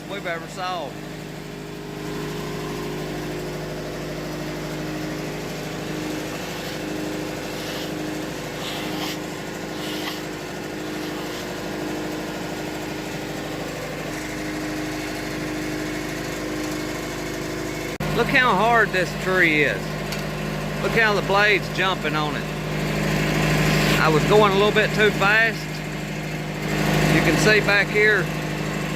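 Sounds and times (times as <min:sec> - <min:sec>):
band sawmill running: 0:00.0 - 0:28.9
brief hissing bursts: 0:06.1 - 0:11.6.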